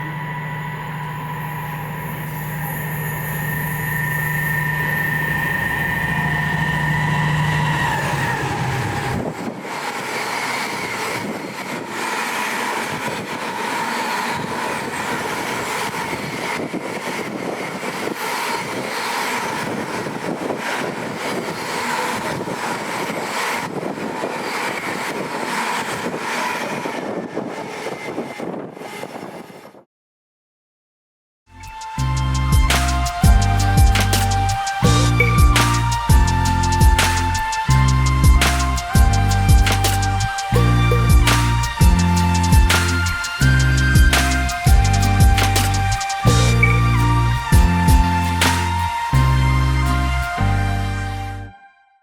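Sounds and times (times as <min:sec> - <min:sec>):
faint whine: 0:00.0 - 0:09.4
train engine hum: 0:00.0 - 0:29.8, 0:31.6 - 0:51.5
wheels rumbling on rail: 0:00.0 - 0:29.8, 0:31.6 - 0:51.2
rail clicks: 0:03.4 - 0:29.2.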